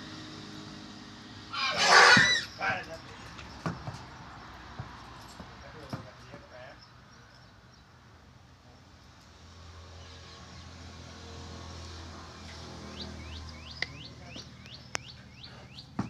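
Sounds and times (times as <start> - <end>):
bird chirping: 12.4 - 16.0.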